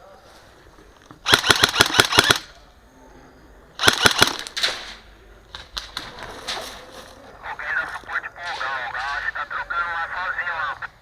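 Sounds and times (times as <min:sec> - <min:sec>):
airsoft gun full-auto bursts: 0:01.2 - 0:02.5, 0:03.8 - 0:04.6
scattered airsoft shots: 0:01.2 - 0:02.6, 0:03.8 - 0:05.0.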